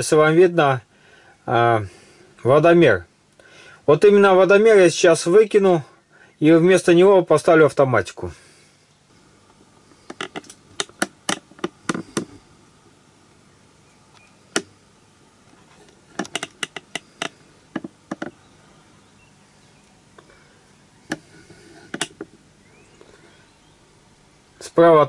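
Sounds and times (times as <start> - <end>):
sharp clicks and light knocks: 9.5 - 12.4, 14.1 - 14.7, 15.5 - 18.4, 21.1 - 22.4.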